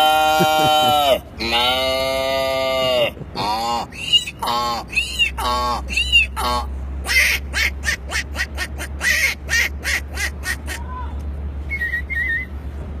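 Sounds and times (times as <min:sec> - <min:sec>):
man imitating animal calls: 0:00.0 - 0:09.4.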